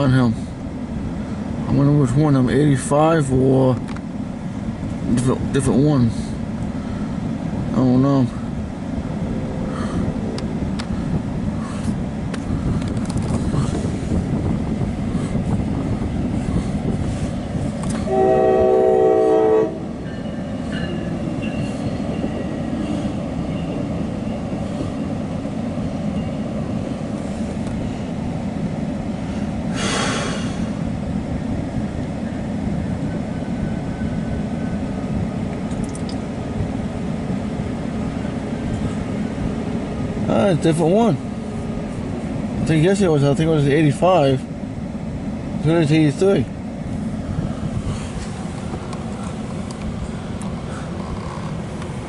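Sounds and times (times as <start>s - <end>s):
train rumble and wheel clatter: 0.0s - 52.0s
locomotive horn: 18.0s - 20.0s.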